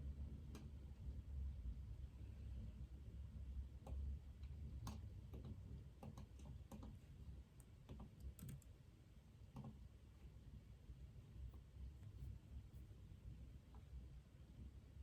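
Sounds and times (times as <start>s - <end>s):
low room hum: 0.0s - 15.0s
keyboard typing: 7.9s - 8.7s.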